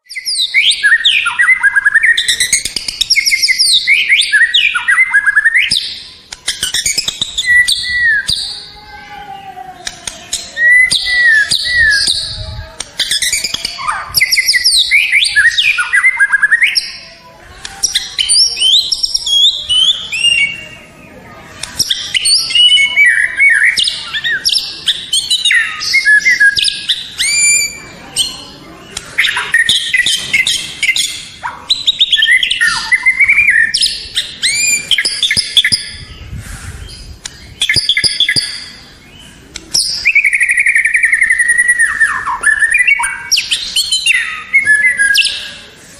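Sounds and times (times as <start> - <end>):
songbird singing whistles and trills: 0.0 - 8.7, 9.8 - 21.1, 21.7 - 45.6.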